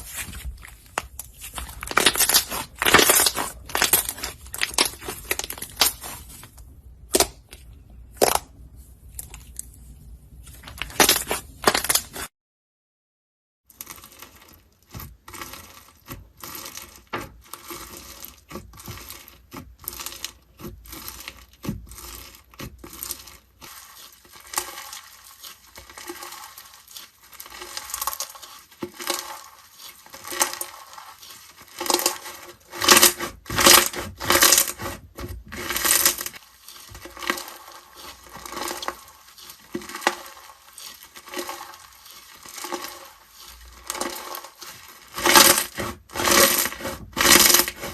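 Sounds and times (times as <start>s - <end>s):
slime crackling and popping: 0.0s - 8.5s, 10.5s - 12.3s.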